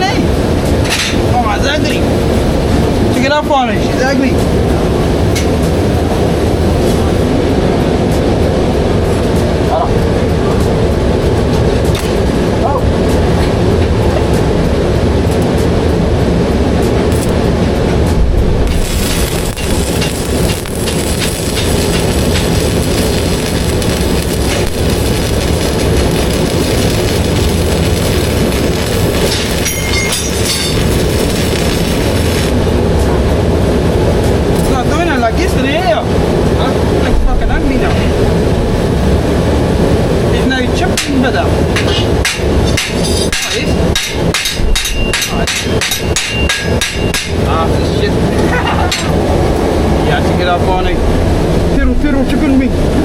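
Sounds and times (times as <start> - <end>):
heavy low rumble: 0.0 - 53.0
welding arc crackling: 0.0 - 53.0
hammer striking metal: 29.1 - 31.0, 41.8 - 47.5.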